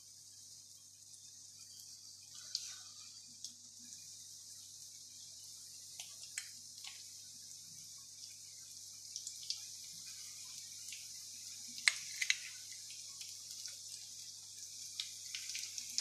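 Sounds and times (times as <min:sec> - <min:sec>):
food sizzling in oil: 0:00.1 - 0:16.0
oil popping and crackling: 0:05.9 - 0:07.1, 0:09.1 - 0:16.0.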